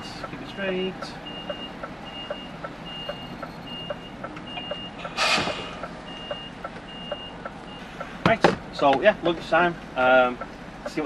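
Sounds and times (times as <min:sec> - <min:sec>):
reversing alarm beeping: 0:00.5 - 0:08.0.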